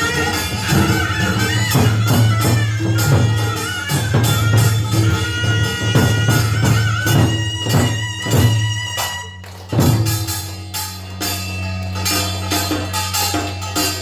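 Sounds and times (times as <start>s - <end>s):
drums beating: 0.0s - 14.0s
lively festive music: 0.0s - 14.0s.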